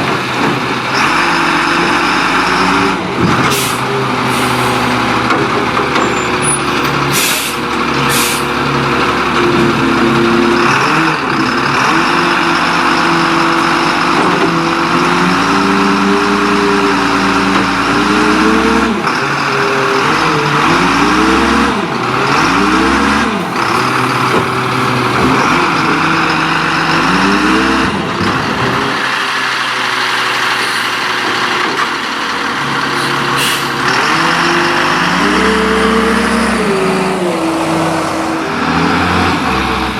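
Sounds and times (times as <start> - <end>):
garbage truck engine revving: 0.0 - 39.9
air-brake hisses: 7.1 - 8.5, 32.9 - 33.8.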